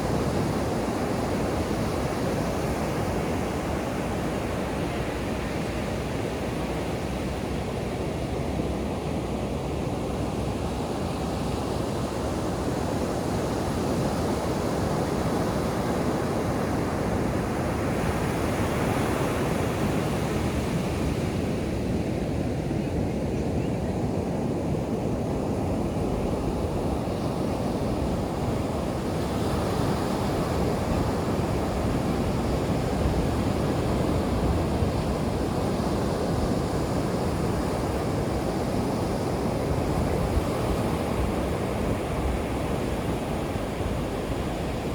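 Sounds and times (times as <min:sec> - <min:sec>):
ocean surf breaking on beach: 0:25.5 - 0:44.9.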